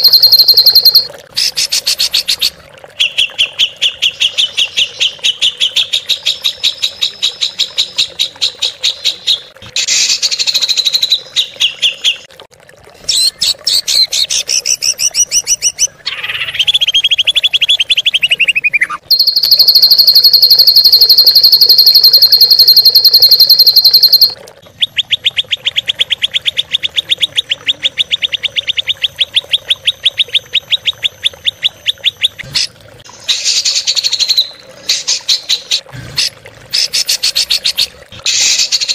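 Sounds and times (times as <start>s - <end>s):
songbird trills: 0.0s - 1.1s, 18.2s - 24.4s.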